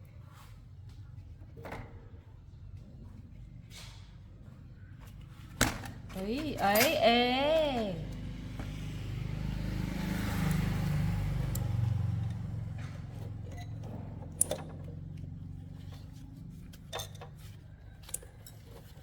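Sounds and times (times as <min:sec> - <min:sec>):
vehicle engine droning: 0:06.1 - 0:17.8.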